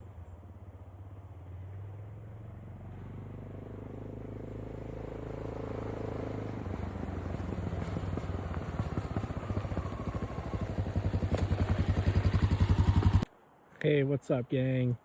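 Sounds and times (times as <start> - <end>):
motorcycle engine running: 2.9 - 13.3.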